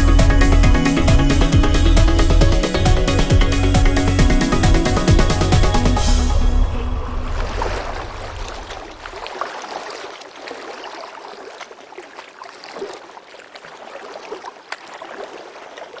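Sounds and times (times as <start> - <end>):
background music: 0.0 - 8.7
water lapping and gurgling: 0.8 - 16.0.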